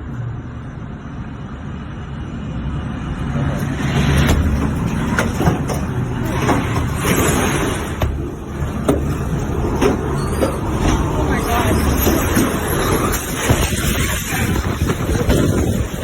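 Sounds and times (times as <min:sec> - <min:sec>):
roaring tornado wind: 0:00.0 - 0:16.0
sharp knocks and rattles: 0:03.4 - 0:16.0.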